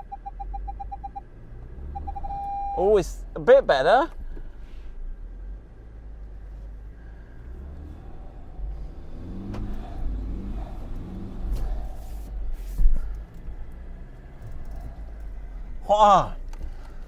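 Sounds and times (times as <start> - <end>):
engine revving under load: 1.3 - 2.7, 5.0 - 17.0.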